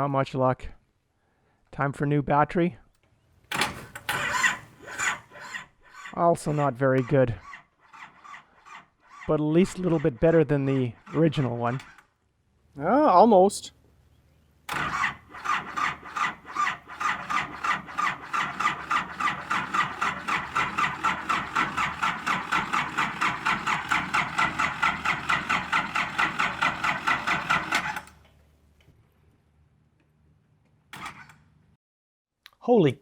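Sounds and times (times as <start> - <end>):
engine cranking by starter: 3.5 - 12.1, 14.7 - 28.2, 30.9 - 31.5.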